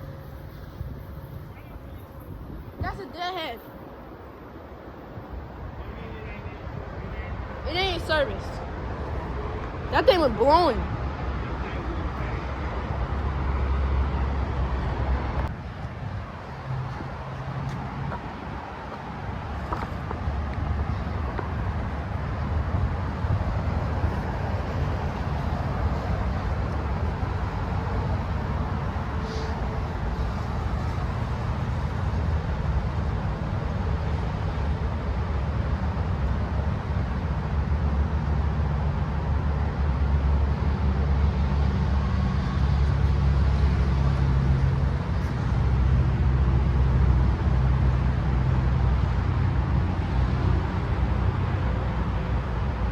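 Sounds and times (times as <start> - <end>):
diesel locomotive engine rumbling: 0.0 - 52.9.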